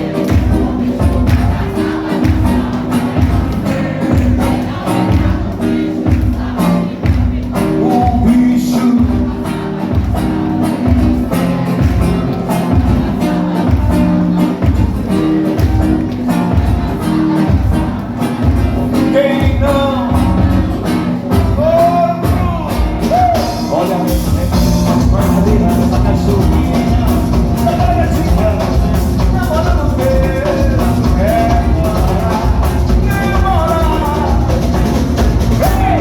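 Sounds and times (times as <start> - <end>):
drums: 0.0 - 36.0
guitar: 0.0 - 36.0
person singing: 0.0 - 36.0.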